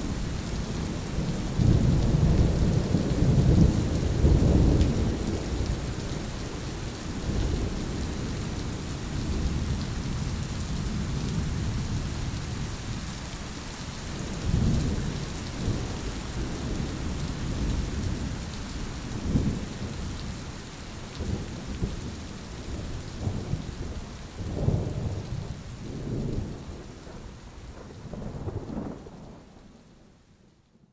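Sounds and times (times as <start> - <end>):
steady rain hiss: 0.0 - 30.9
low rolling thunder: 0.1 - 12.7, 19.1 - 20.4, 21.2 - 29.8.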